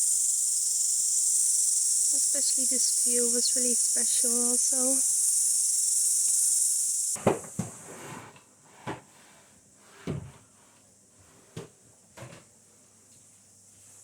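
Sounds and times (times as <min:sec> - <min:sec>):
household knocks and clunks: 0:07.2 - 0:09.2, 0:09.9 - 0:10.5, 0:11.5 - 0:12.5.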